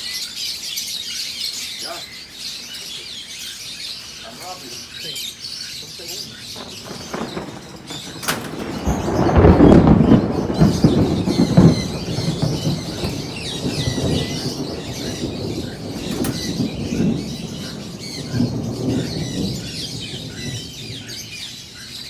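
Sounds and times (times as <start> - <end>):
birds chirping: 0.0 - 22.0
wings flapping and scuffling: 5.8 - 21.2.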